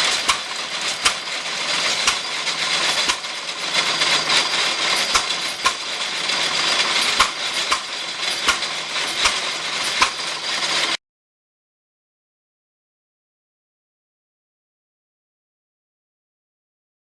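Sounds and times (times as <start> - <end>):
engine knocks: 0.0 - 11.0
feed grinder clattering: 0.0 - 11.0.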